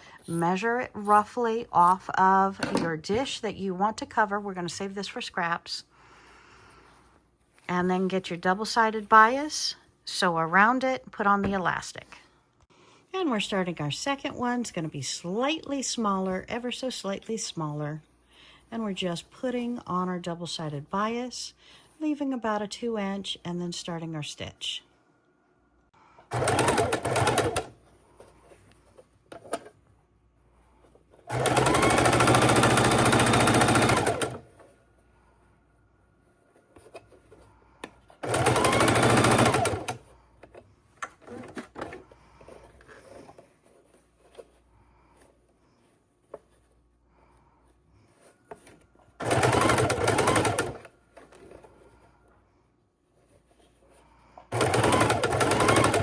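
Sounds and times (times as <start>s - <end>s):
sewing machine stitching: 26.3s - 27.8s, 31.2s - 34.5s, 38.2s - 40.1s, 48.6s - 51.6s, 54.5s - 56.0s.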